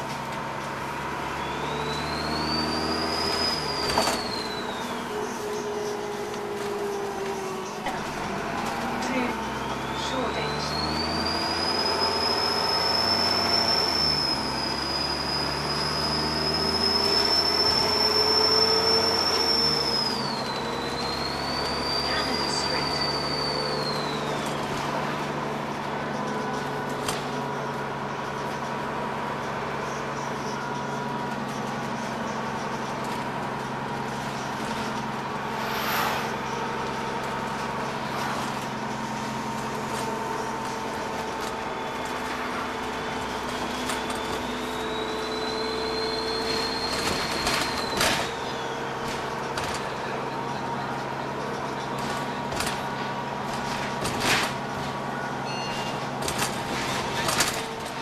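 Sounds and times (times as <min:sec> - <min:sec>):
diesel bus engine running: 0:00.0 - 0:58.0
turbocharger whistle: 0:01.0 - 0:28.5, 0:29.8 - 0:52.8, 0:54.3 - 0:58.0
turbo whistle: 0:01.3 - 0:05.4, 0:09.4 - 0:24.7, 0:35.3 - 0:36.7, 0:43.2 - 0:48.8
brief rush of noise: 0:35.3 - 0:36.8.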